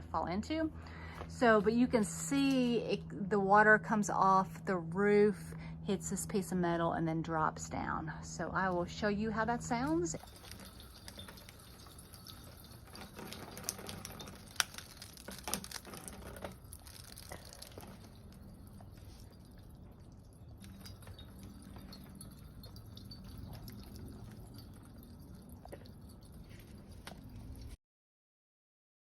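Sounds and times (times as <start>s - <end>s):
faint water trickle: 8.3s - 27.8s
water dripping on metal chain: 9.4s - 27.8s.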